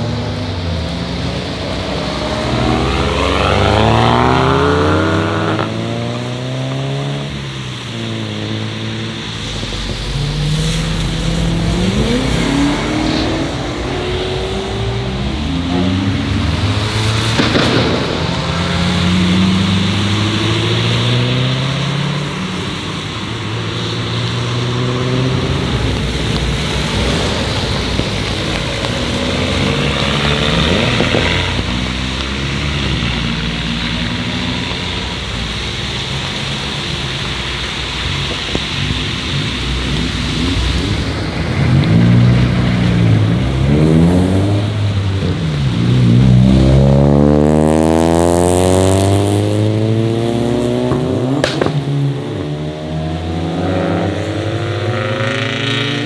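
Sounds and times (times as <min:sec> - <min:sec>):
car engines accelerating: 0:00.0 - 0:56.0
cars revving: 0:00.0 - 0:56.0
tyres hissing on wet road: 0:00.0 - 0:56.0.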